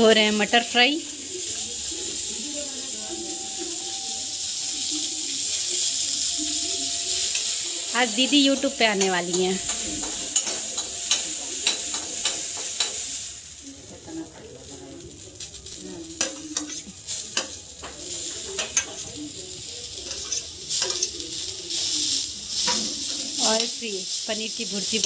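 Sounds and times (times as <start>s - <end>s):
vegetables sizzling in a pan: 0.0s - 25.0s
metal spoon scraping a pan: 3.2s - 13.2s, 16.1s - 19.2s, 20.0s - 23.8s.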